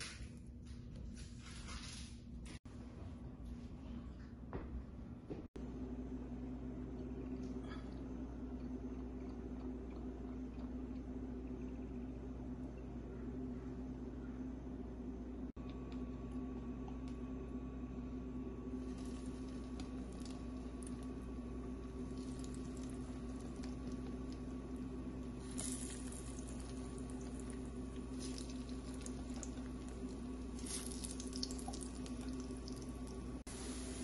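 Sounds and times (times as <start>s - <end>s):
steady low hum: 0.0s - 34.0s
patties sizzling in hot oil: 18.8s - 34.0s.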